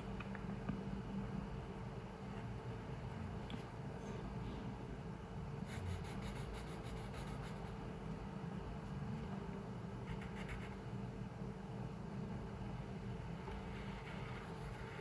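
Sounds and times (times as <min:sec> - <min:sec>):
low room hum: 0:00.0 - 0:15.0
scratchy drawing strokes on paper: 0:05.6 - 0:07.8, 0:13.5 - 0:15.0.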